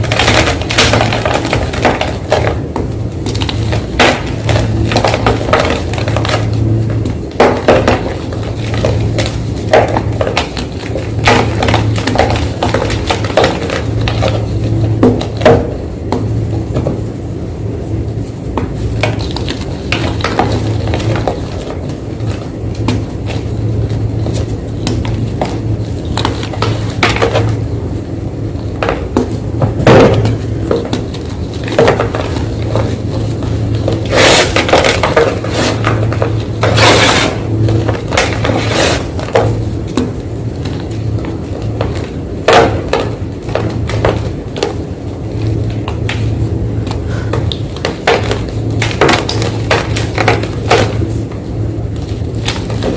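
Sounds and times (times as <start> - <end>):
steady low hum: 0.0 - 52.9
chalk being crushed: 33.8 - 39.5.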